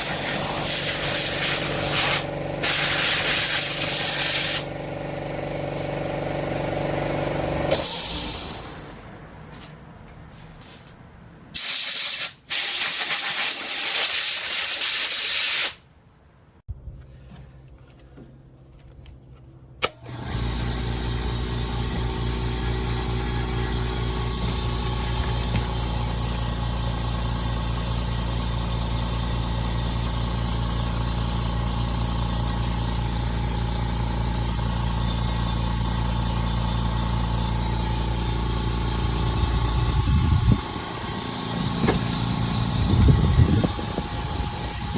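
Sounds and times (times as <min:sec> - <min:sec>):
compressed air hissing: 0:00.0 - 0:04.7, 0:11.6 - 0:15.8
air compressor motor running: 0:00.0 - 0:09.2, 0:20.0 - 0:44.9.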